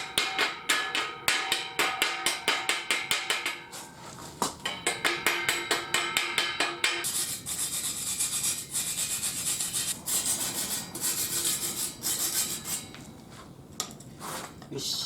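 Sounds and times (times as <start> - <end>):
trowel tapping on brickwork: 0.0 - 3.7, 4.6 - 7.1.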